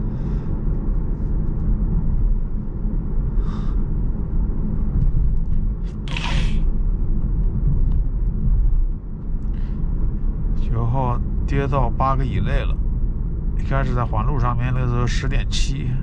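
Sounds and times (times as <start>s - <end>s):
road and tyre rumble: 0.0s - 16.0s.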